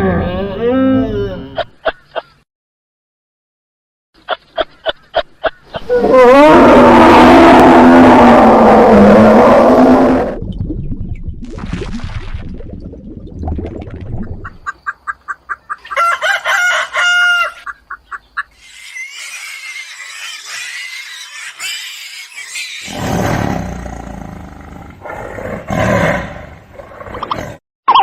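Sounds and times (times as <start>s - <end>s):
animal calls: 17.4s - 23.4s.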